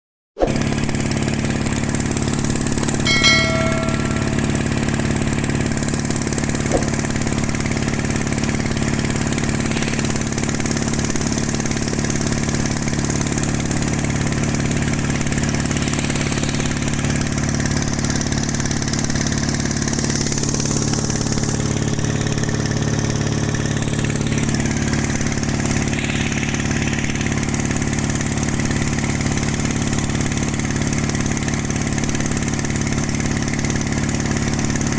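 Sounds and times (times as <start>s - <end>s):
ringing tone: 3.1s - 5.2s.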